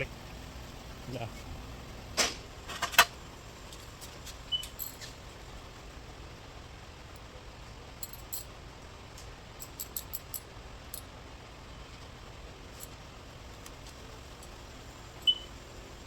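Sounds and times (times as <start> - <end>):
low steady hum: 0.0 - 16.0
small parts and tools clicking: 3.7 - 5.1, 8.0 - 8.5, 9.2 - 11.1.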